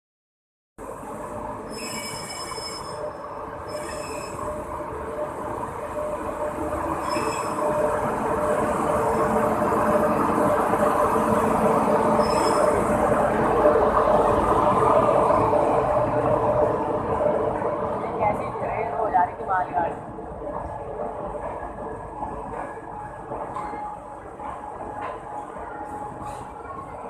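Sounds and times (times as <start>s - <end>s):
train rolling slowly past: 0.8s - 27.0s
high wheel squeals: 1.7s - 3.0s, 3.7s - 4.4s, 7.0s - 7.6s, 12.2s - 12.8s.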